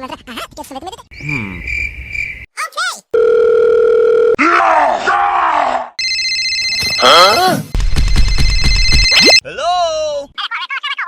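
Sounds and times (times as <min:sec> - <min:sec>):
low dial tone: 0:03.2 - 0:04.4
multi-tone telephone ring: 0:03.2 - 0:04.4, 0:06.0 - 0:07.2, 0:08.3 - 0:09.4
high telephone beep: 0:08.0 - 0:09.4.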